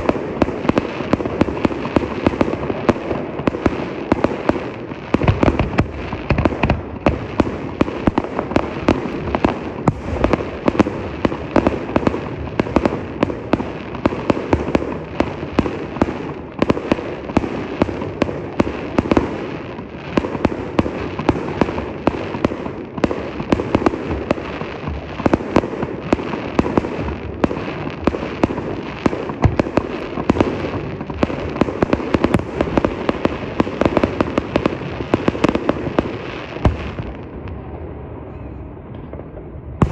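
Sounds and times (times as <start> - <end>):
fireworks popping and banging: 0.0 - 37.7, 38.9 - 39.9.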